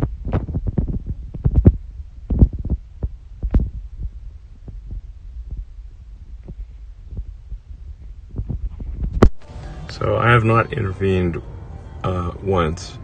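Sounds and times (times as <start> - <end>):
irregular thumps and knocks: 0.0 - 9.4
low road rumble in car cabin: 0.0 - 11.4.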